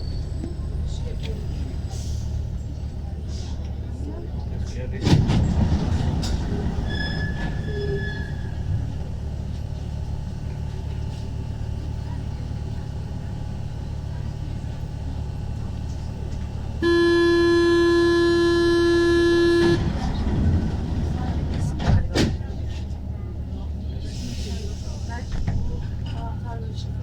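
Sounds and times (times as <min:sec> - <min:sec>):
low hum of stopped train: 0:00.0 - 0:27.0
buzzing door-closing warning tone: 0:16.8 - 0:19.9.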